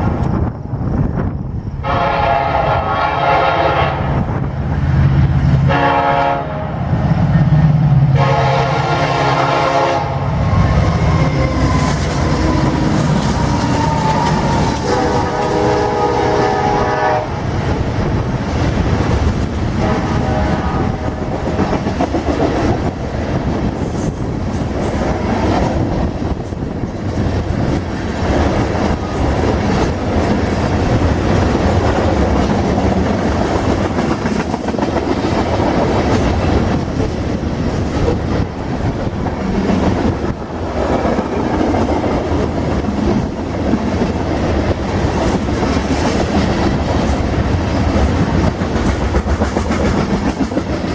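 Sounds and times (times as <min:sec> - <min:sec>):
freight train rumbling past: 0:00.0 - 0:50.9
train horn note: 0:01.8 - 0:04.2, 0:05.6 - 0:12.9, 0:13.7 - 0:17.4, 0:19.8 - 0:21.7.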